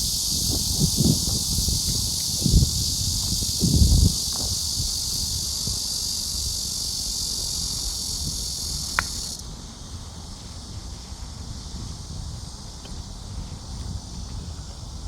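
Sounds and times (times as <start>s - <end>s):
high-pitched insect buzzing: 0.0s - 9.4s.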